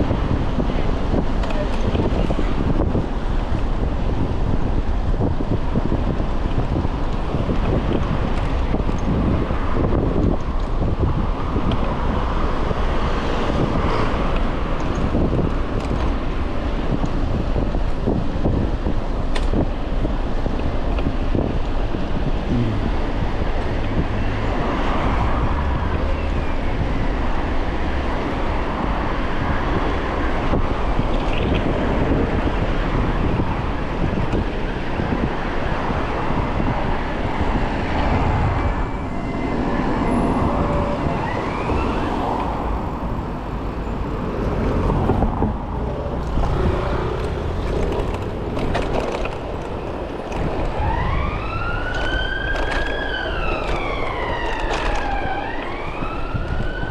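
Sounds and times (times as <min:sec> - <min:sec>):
traffic noise: 0:00.0 - 0:56.9
wind rushing over microphone: 0:00.0 - 0:56.9
emergency vehicle siren wailing: 0:38.4 - 0:42.6, 0:49.6 - 0:56.9.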